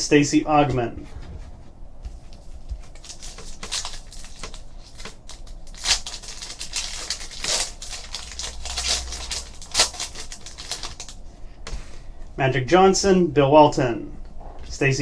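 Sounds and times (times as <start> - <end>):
cards clicking and rustling: 2.9 - 11.8.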